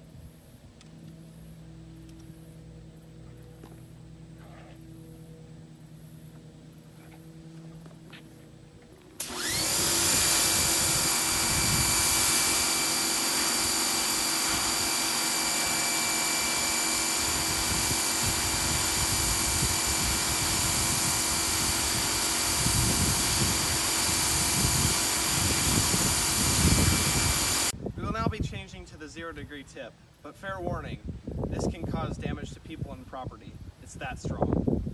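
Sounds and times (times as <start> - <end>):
high whine: 0.0 - 28.4
pressure washer spraying: 9.2 - 27.7.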